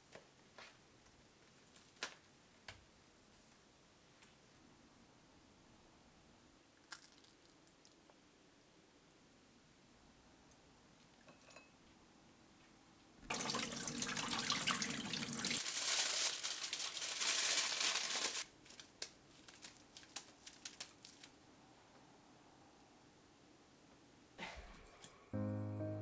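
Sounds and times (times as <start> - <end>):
water drips: 13.3 - 15.6
water running from tap: 13.3 - 17.0.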